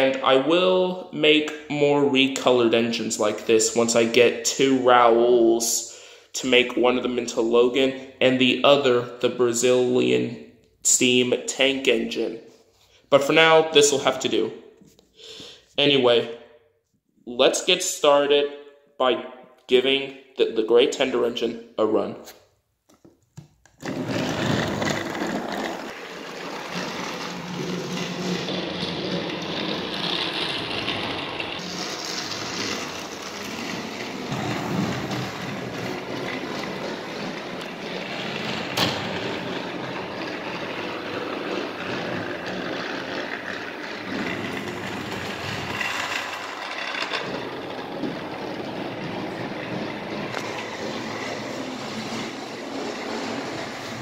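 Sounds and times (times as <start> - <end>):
toy train motor whirring: 24.8 - 33.7, 40.9 - 48.7.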